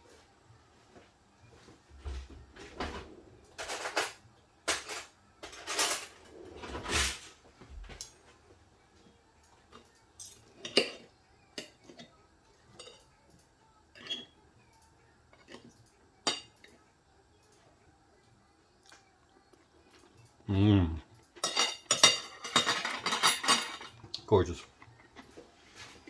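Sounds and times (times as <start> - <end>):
cutlery scraping a plate: 2.9 - 8.2, 9.7 - 13.1, 13.9 - 14.4, 15.3 - 16.8, 21.3 - 24.0
cutlery clinking: 3.4 - 8.3, 9.5 - 14.4, 15.3 - 16.8, 21.2 - 24.2.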